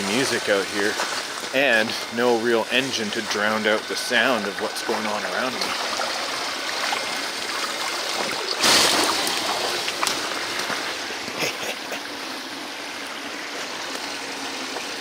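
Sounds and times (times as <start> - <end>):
creek water running: 0.0 - 15.0
water splash: 2.6 - 11.7.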